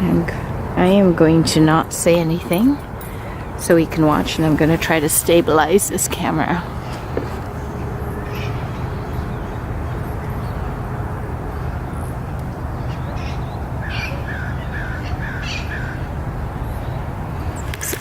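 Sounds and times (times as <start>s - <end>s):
steady low rumble: 0.0s - 17.8s
fainter higher bird calls: 6.8s - 17.7s.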